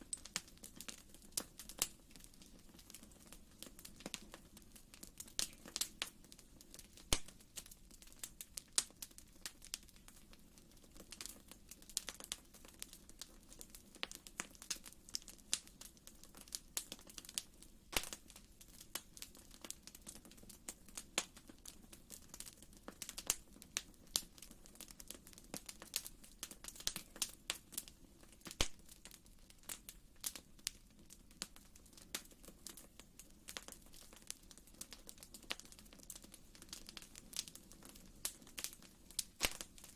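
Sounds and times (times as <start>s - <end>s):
fireplace fire crackling: 0.0s - 39.9s.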